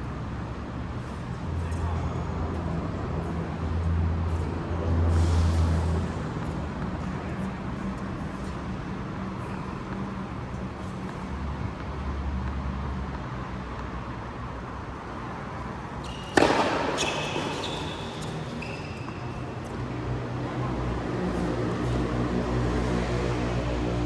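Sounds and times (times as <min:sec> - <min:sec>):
steady background hum: 0:00.0 - 0:24.0
short high squeaks: 0:16.0 - 0:19.6
racket hitting ball: 0:16.1 - 0:18.7.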